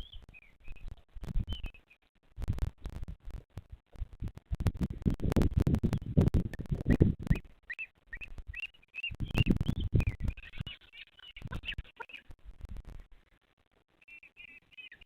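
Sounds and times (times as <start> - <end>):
scratching and knocking on microphone: 0.8 - 1.8, 2.4 - 7.6, 9.2 - 10.7
thin bird chirps: 6.9 - 12.3, 14.0 - 15.0.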